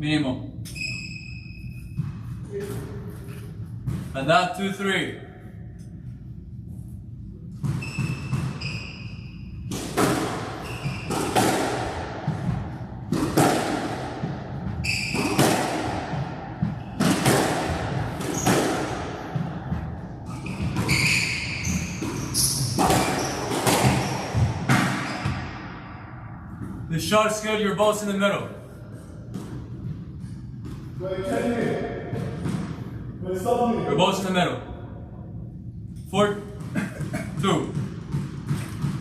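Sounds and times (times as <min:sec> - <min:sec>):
shoes squeaking on court floor: 0:00.7 - 0:04.2, 0:07.6 - 0:11.5, 0:14.7 - 0:15.6, 0:18.2 - 0:19.0, 0:20.3 - 0:25.6
squash ball hitting rackets and walls: 0:00.7 - 0:04.4, 0:07.4 - 0:26.9, 0:29.0 - 0:33.7, 0:36.2 - 0:39.0.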